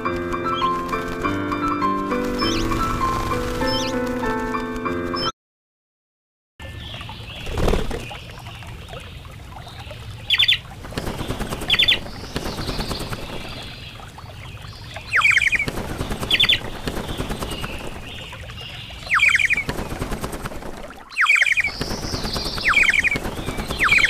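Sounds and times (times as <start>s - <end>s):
birds calling sharp notes: 0.0s - 4.1s, 6.6s - 20.1s, 21.1s - 24.0s
wings flapping: 0.0s - 5.3s, 7.4s - 8.2s, 10.4s - 14.2s, 15.1s - 24.0s.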